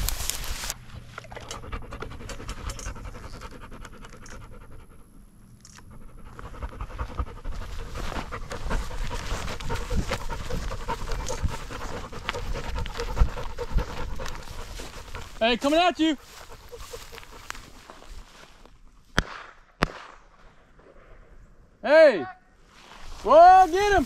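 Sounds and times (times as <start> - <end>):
dog panting: 1.3 - 18.2.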